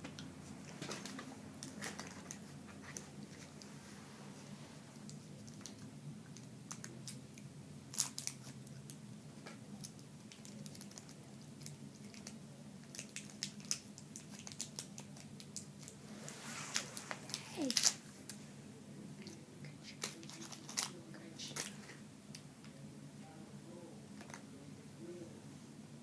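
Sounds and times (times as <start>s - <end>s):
crunching of chewing crackers: 5.0s - 9.0s, 9.8s - 16.0s.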